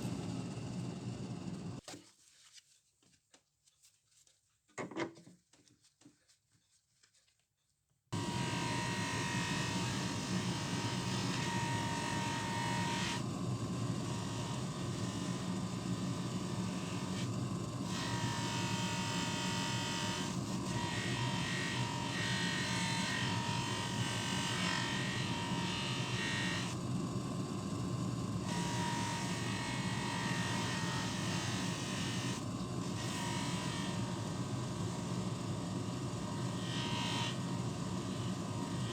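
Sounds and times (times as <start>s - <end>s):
small electric motor whining: 8.2s - 26.8s, 28.4s - 38.9s.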